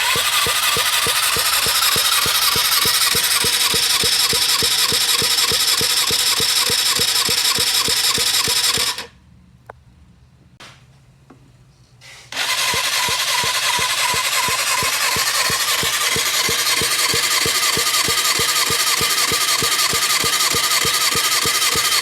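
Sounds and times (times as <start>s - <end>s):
engine starter whine cranking: 0.0s - 9.2s, 12.3s - 22.0s.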